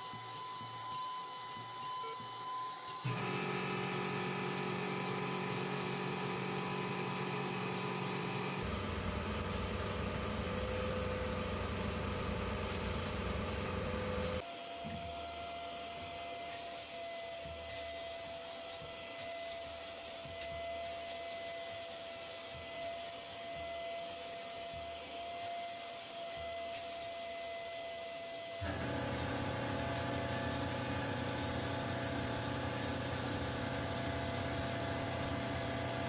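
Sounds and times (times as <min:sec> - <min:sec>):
power tool abrading metal: 0:02.9 - 0:08.6, 0:28.6 - 0:36.0.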